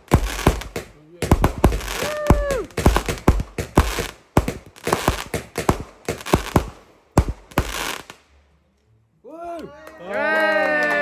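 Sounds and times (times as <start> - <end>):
fireworks bangs and crackles: 0.0 - 8.3.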